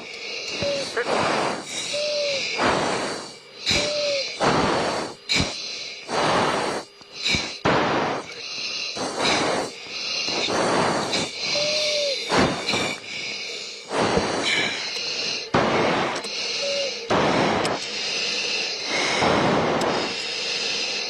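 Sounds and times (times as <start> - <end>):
heavy rapid breathing into microphone: 0.0 - 21.0.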